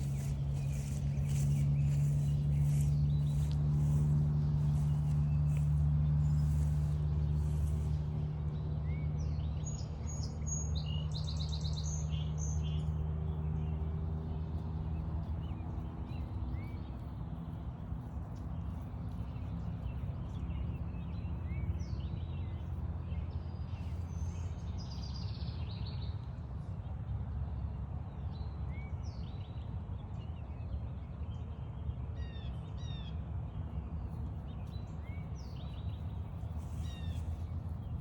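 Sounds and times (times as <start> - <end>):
wild birds chirping and trilling: 0.0 - 8.2, 34.0 - 38.0
steady low hum: 0.0 - 10.4, 33.3 - 38.0.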